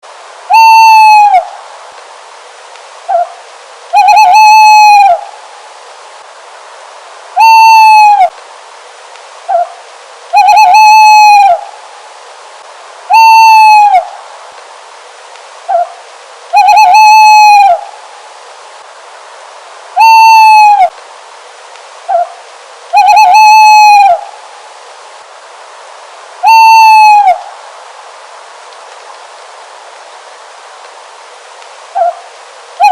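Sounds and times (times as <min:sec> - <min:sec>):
owl hooting: 0:00.4 - 0:01.6, 0:03.0 - 0:05.4, 0:07.3 - 0:08.4, 0:09.4 - 0:11.8, 0:13.0 - 0:14.2, 0:15.6 - 0:18.0, 0:19.9 - 0:21.0, 0:22.0 - 0:24.4, 0:26.4 - 0:27.6, 0:31.9 - 0:32.9.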